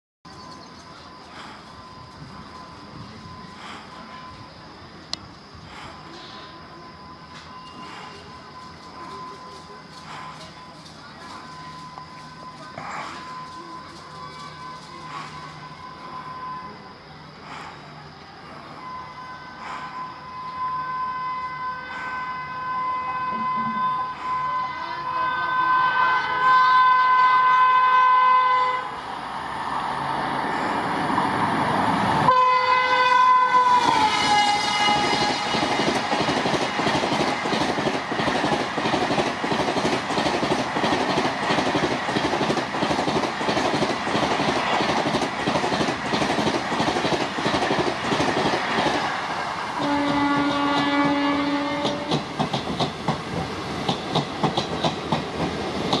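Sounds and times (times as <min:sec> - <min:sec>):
lower-pitched train horn: 0:18.5 - 0:29.0, 0:32.2 - 0:36.2, 0:49.7 - 0:52.3
train horn: 0:18.8 - 0:29.0, 0:32.2 - 0:36.1, 0:49.7 - 0:52.3
wheels clacking over rail joints: 0:33.8 - 0:56.0.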